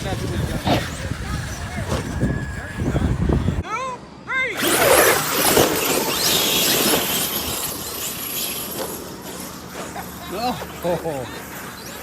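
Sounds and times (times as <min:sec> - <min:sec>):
electric motor whine: 0:04.6 - 0:12.0.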